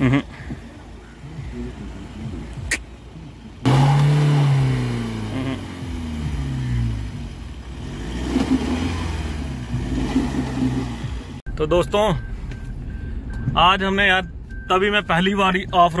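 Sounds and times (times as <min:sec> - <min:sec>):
car engine revving: 0:01.1 - 0:11.4.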